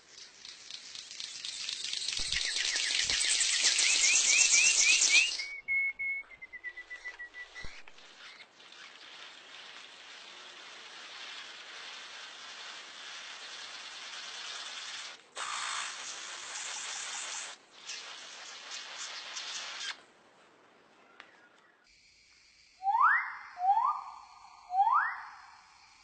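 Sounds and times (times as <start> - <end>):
steady high hiss: 0.0 - 5.6, 6.4 - 26.0
bird whistling and trilling: 1.5 - 8.9, 22.8 - 25.6.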